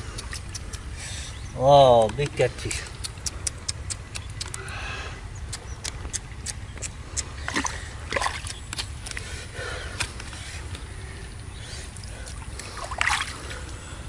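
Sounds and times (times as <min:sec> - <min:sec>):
sharp clicks: 0:00.1 - 0:00.9, 0:02.0 - 0:04.7, 0:05.4 - 0:07.3
water splashing and sloshing: 0:07.3 - 0:14.0.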